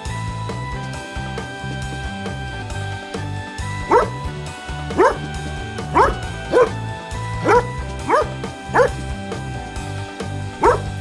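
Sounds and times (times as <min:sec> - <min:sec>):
background music: 0:00.0 - 0:11.0
dog barking: 0:03.8 - 0:04.3, 0:04.9 - 0:06.8, 0:07.4 - 0:09.0, 0:10.5 - 0:11.0.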